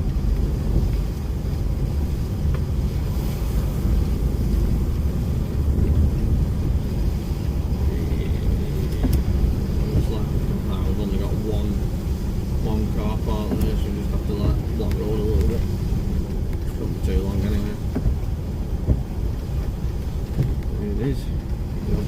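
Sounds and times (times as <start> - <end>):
lorry engine and road rumble: 0.0 - 22.0.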